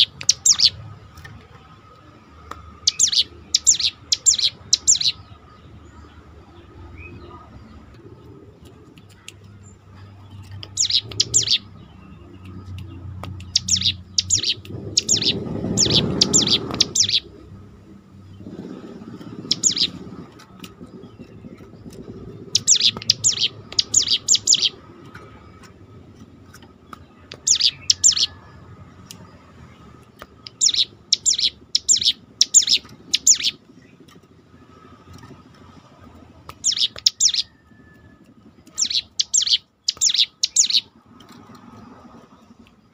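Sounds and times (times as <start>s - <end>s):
low background rumble: 0.0s - 42.9s
bird singing high notes: 2.8s - 5.2s, 13.5s - 17.3s, 19.4s - 20.0s, 22.6s - 24.8s.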